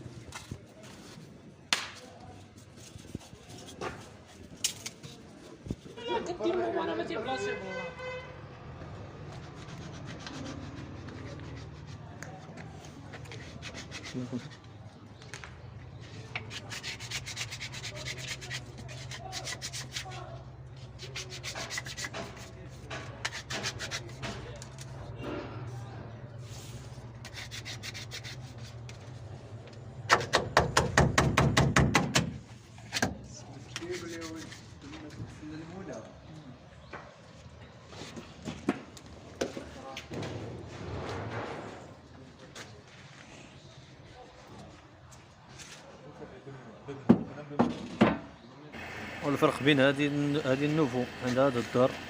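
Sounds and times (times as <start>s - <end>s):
rubbing scraping strokes: 9.3s - 12.1s, 16.0s - 24.4s, 26.4s - 29.2s, 33.7s - 35.0s.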